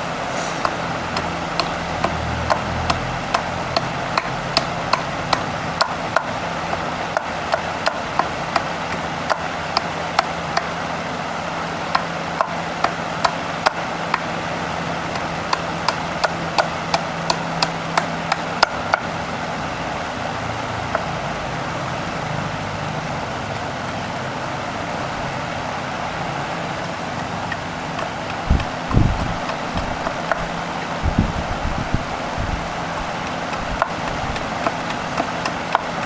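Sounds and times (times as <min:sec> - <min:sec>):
steady mechanical hum: 0:00.0 - 0:36.0
sharp knocks: 0:27.9 - 0:35.8.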